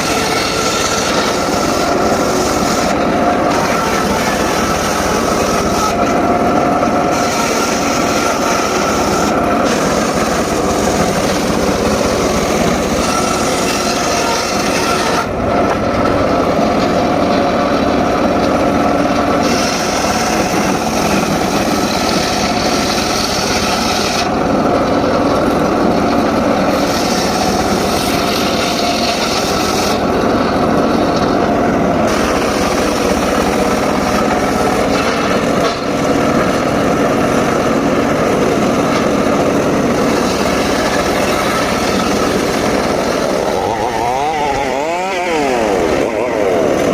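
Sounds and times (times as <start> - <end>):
circular saw cutting wood: 0.0 - 46.9.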